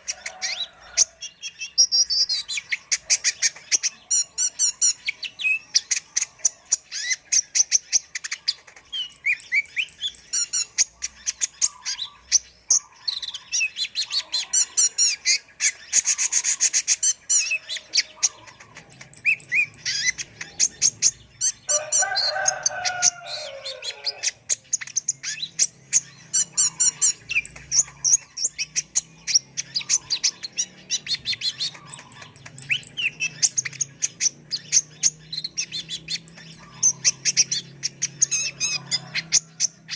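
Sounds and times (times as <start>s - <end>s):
sunbird chirps and trills: 0.0s - 39.9s
lower harsh bird call: 8.5s - 39.9s.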